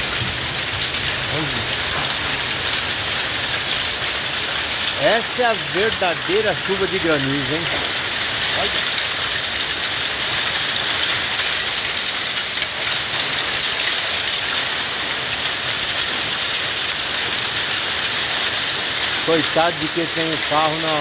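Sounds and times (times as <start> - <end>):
hailstones striking hard surfaces: 0.0 - 21.0.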